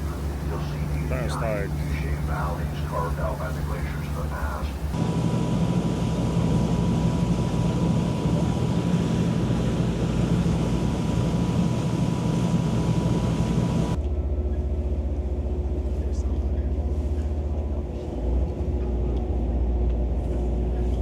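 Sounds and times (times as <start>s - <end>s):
rush of wind and water: 0.0s - 14.0s
boat engines droning: 0.0s - 21.0s
low engine hum: 0.0s - 21.0s.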